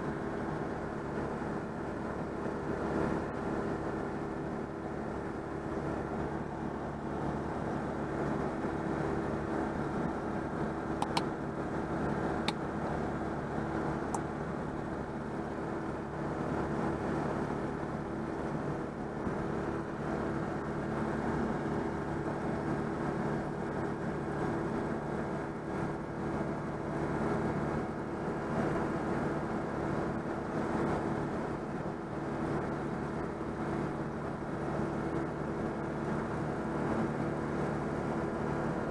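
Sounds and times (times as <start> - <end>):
car engine running: 0.0 - 38.9
road noise: 0.0 - 38.9
sharp clicks: 11.0 - 11.3.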